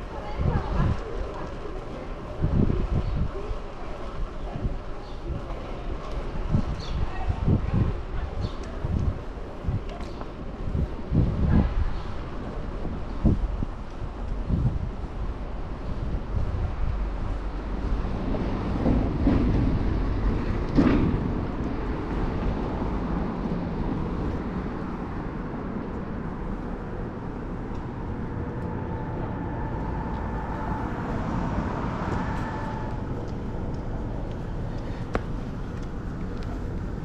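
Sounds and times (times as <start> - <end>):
city traffic passing: 0.0 - 37.0
wind on microphone: 0.0 - 37.0
faint vehicle whine: 13.7 - 37.0.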